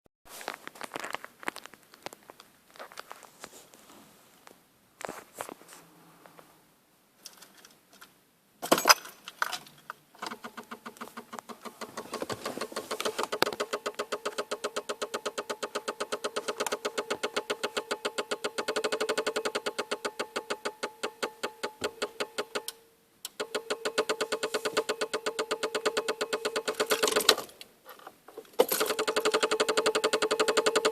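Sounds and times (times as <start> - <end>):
fast even clicking: 10.2 - 27.6, 28.6 - 30.9.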